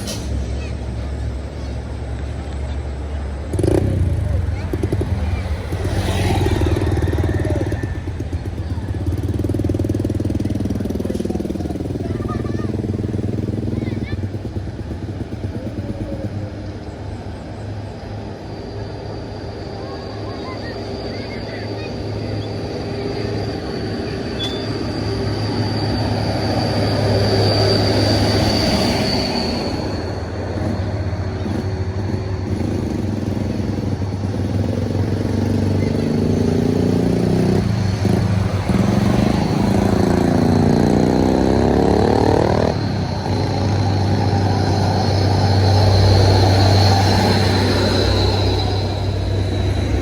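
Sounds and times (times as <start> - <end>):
brief hiss: 0.0 - 0.7
vehicle engine pulsing: 0.0 - 50.0
high-pitched whine: 15.3 - 50.0.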